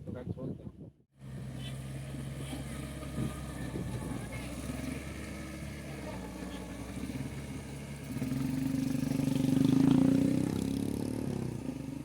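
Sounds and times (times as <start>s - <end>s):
motorcycle engine passing by: 1.2s - 12.0s.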